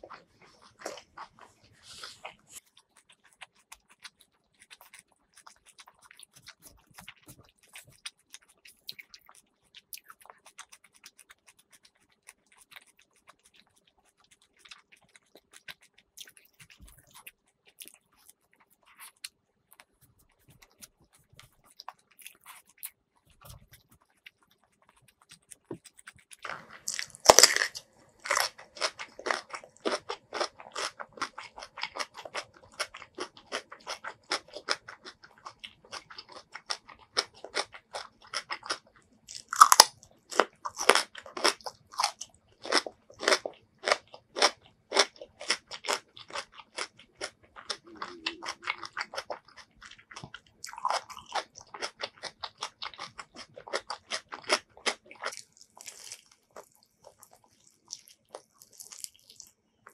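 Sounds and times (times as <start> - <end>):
crisp rapid chewing: 0.0 - 59.9
radish crunching bite: 25.3 - 35.0, 38.3 - 49.4.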